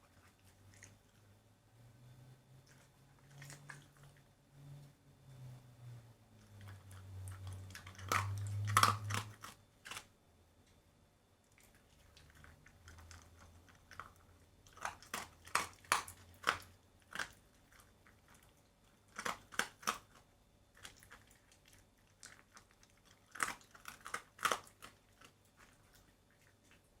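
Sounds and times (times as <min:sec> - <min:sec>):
dog chewing meat: 0:02.6 - 0:04.2, 0:06.4 - 0:10.1, 0:11.6 - 0:27.0.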